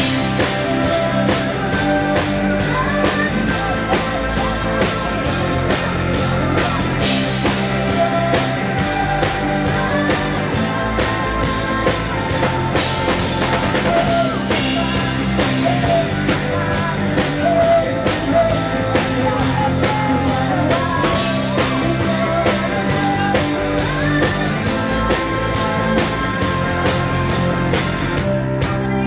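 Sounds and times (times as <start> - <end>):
drum kit beat: 0.0 - 29.0
live rock band playing: 0.0 - 29.0
person singing: 0.0 - 29.0.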